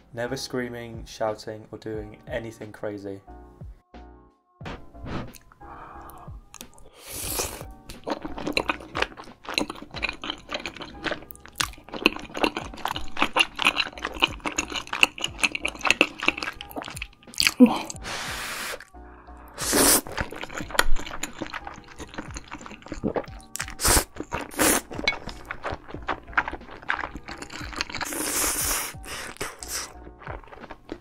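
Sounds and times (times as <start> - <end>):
hissy breaths or slurps: 5.0 - 7.6, 17.5 - 18.9, 19.6 - 25.5, 27.4 - 30.0
wet mouth clicks and smacks: 6.6 - 6.8.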